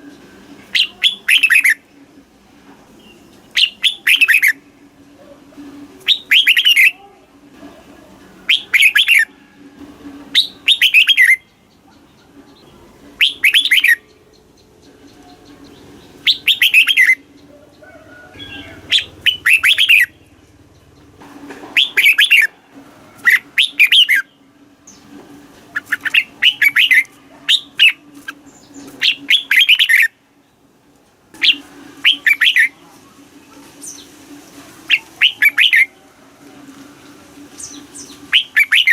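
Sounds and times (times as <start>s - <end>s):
bulbul singing warbled phrases: 0.7s - 1.9s, 3.0s - 4.6s, 6.0s - 7.1s, 8.5s - 9.3s, 10.4s - 21.1s, 21.8s - 22.5s, 23.2s - 24.4s, 25.7s - 30.2s, 31.4s - 32.8s, 34.9s - 36.0s, 37.6s - 38.9s.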